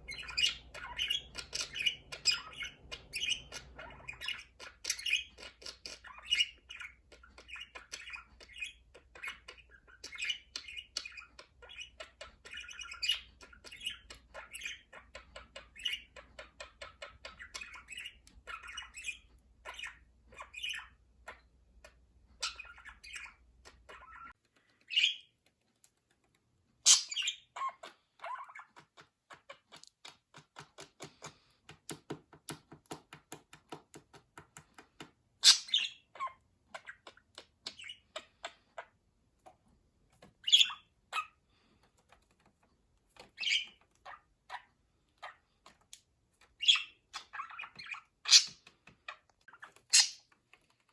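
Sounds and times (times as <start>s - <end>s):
budgerigars chirping: 0.0s - 24.3s, 24.9s - 25.3s, 26.8s - 29.6s, 35.4s - 39.0s, 40.4s - 41.4s, 43.2s - 45.4s, 46.4s - 50.3s
sharp bird calls: 46.6s - 48.6s, 49.9s - 50.2s.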